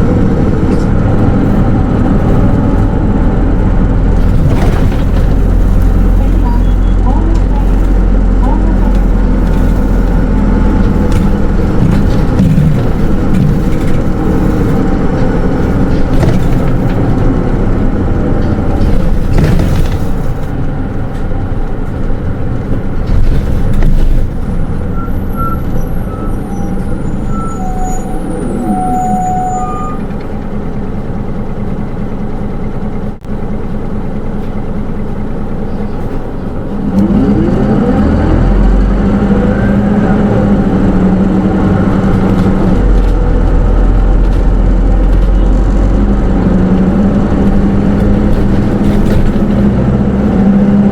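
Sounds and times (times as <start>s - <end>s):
brakes squealing: 0.0s - 31.9s
bus engine running: 0.0s - 50.9s.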